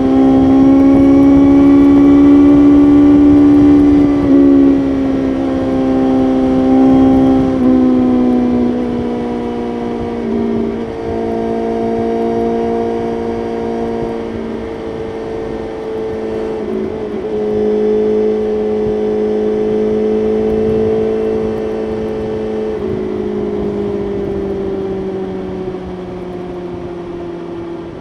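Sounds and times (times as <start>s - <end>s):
motorcycle engine at high revs: 0.0s - 28.0s
wind rumble on microphone: 0.0s - 28.0s.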